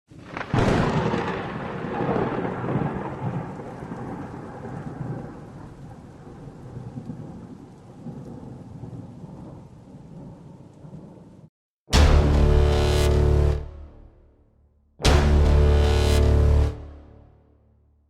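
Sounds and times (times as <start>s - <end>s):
thunderclap crack: 0.1s - 11.3s
rolling thunder rumble: 0.1s - 11.5s.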